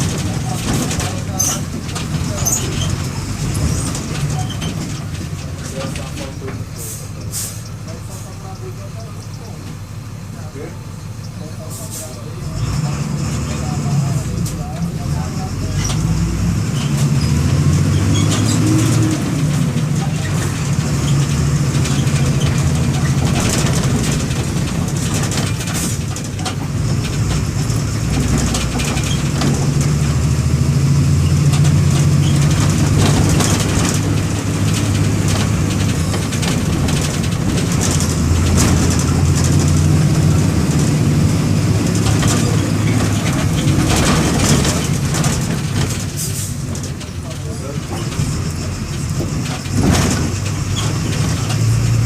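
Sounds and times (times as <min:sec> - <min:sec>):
short knocks and rattles: 0:00.0 - 0:06.7, 0:13.3 - 0:52.0
diesel bus engine running: 0:00.0 - 0:52.0.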